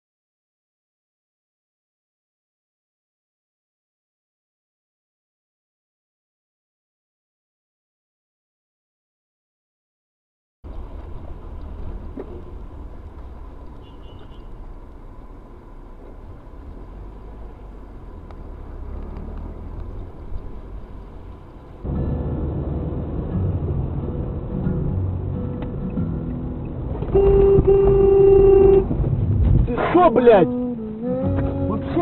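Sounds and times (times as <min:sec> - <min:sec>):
car interior road rumble: 0:10.6 - 0:32.0.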